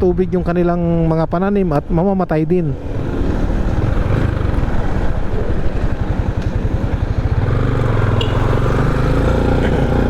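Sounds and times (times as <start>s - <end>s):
motorcycle engine running: 3.0s - 10.0s.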